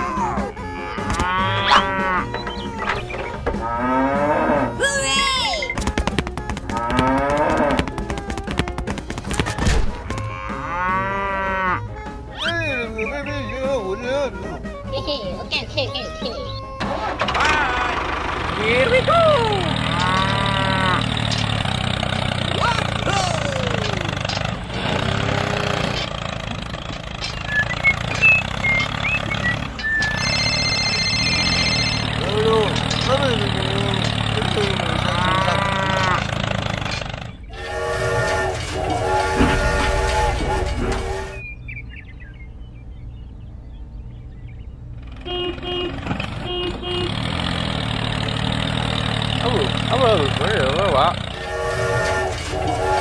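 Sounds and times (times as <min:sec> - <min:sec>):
cow mooing: 0:00.3 - 0:02.8, 0:03.5 - 0:04.8, 0:06.8 - 0:07.9, 0:10.2 - 0:12.0, 0:19.8 - 0:21.3, 0:34.6 - 0:36.4
tractor engine idling: 0:01.4 - 0:03.9, 0:16.1 - 0:41.9, 0:44.9 - 0:53.0
fast clicks: 0:05.7 - 0:09.6
mobile phone ringing: 0:29.8 - 0:32.3.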